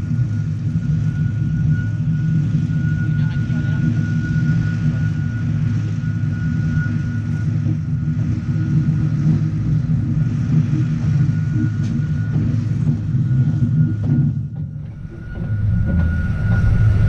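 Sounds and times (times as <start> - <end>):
thin steady whine: 0.0 - 17.0
train carriages rumbling: 6.9 - 17.0.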